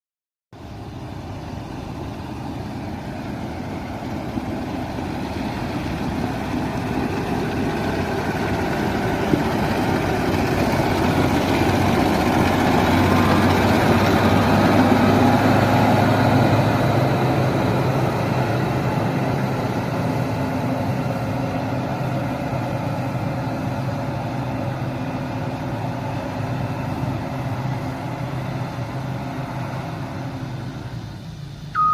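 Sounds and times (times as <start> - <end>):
excavator diesel engine running: 0.6 - 31.9.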